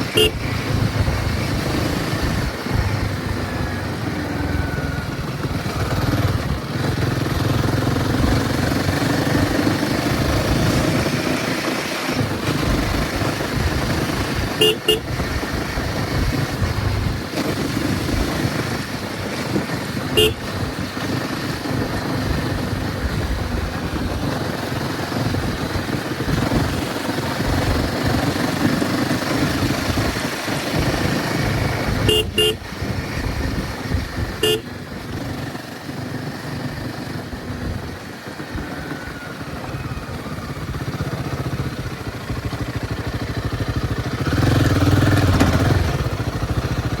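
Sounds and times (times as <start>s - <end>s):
horn beeps: 0.0s - 0.6s, 14.6s - 15.2s, 20.1s - 20.5s, 32.0s - 32.7s, 34.4s - 34.7s
motorcycle engine running: 0.0s - 47.0s.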